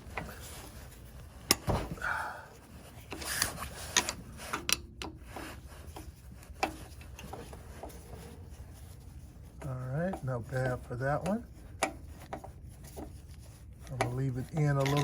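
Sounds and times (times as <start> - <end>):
screwdriver scraping metal: 3.1 - 15.0.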